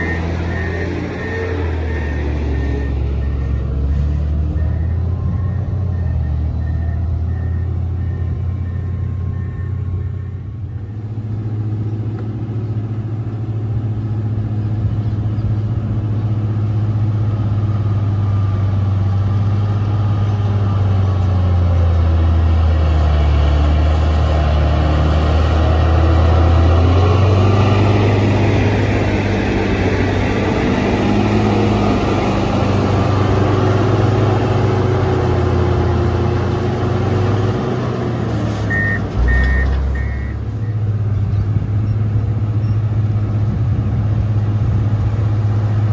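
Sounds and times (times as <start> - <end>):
reversing beeps: 0.0 - 11.0, 38.7 - 40.9, 41.9 - 42.9
diesel engine revving: 0.0 - 45.9.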